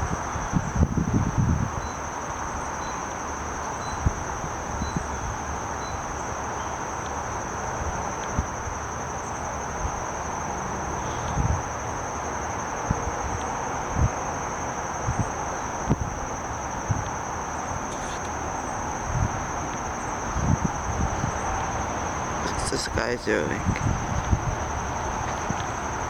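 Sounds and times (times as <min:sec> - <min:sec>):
wind bumps on microphone: 0:00.0 - 0:01.9, 0:11.3 - 0:11.6, 0:15.9 - 0:16.2, 0:19.0 - 0:19.6, 0:20.3 - 0:21.6, 0:23.5 - 0:26.0
insect chorus: 0:00.0 - 0:26.0
rushing outdoor background: 0:17.6 - 0:26.0.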